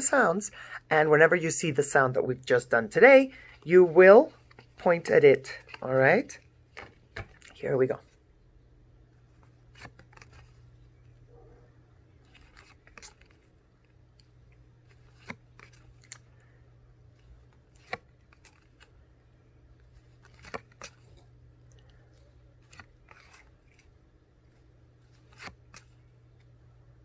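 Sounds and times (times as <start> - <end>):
paper cards tapping and rustling: 3.5 - 8.1, 9.3 - 10.7, 12.3 - 16.5, 17.1 - 19.0, 19.8 - 23.9, 25.0 - 26.5.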